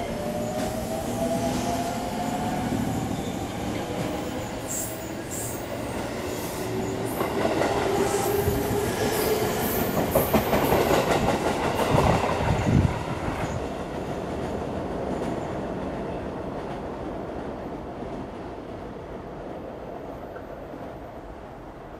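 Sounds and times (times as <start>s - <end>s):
electric train rushing past: 0.0s - 17.7s
heavy rail-joint clacks: 9.3s - 17.5s.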